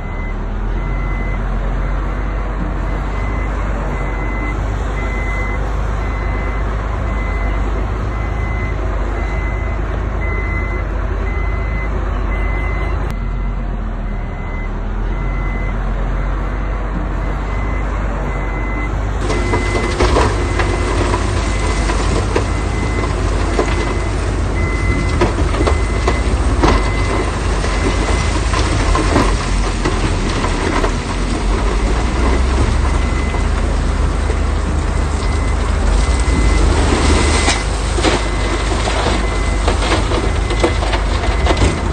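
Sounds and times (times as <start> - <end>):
reversing alarm beeping: 0.0 - 28.8, 32.7 - 33.6, 35.2 - 41.9
heavy machine engine running: 0.0 - 41.9.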